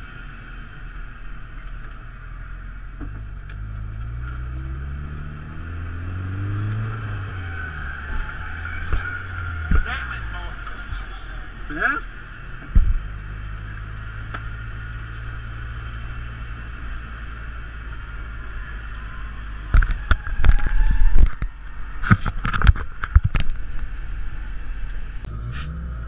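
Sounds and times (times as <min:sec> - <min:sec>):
car engine running: 0:00.0 - 0:20.6.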